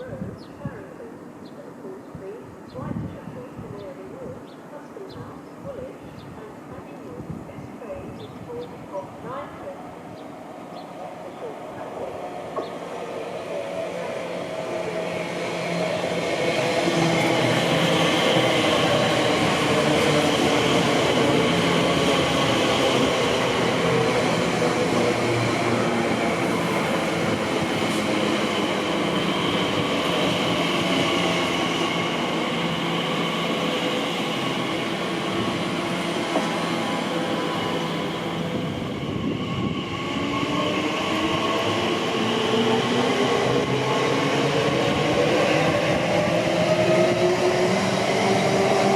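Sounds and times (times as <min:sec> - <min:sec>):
train rumbling: 0:01.6 - 0:48.9.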